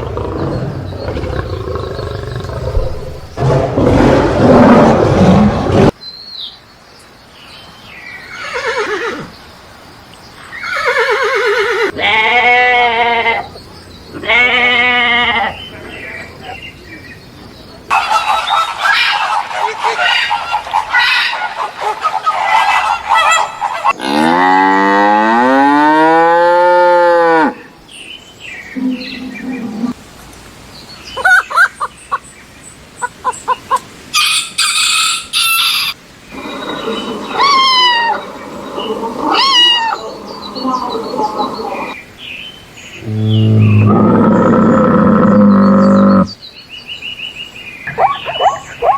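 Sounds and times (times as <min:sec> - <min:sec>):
livestock bleating: 0:12.0 - 0:13.5
chickens clucking: 0:17.9 - 0:24.0.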